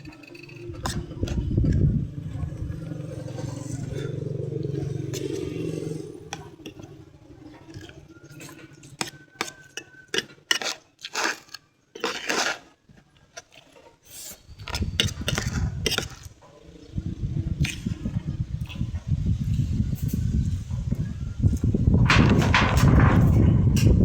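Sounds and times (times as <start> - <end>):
low rumble: 0.6 - 8.1, 16.9 - 24.0.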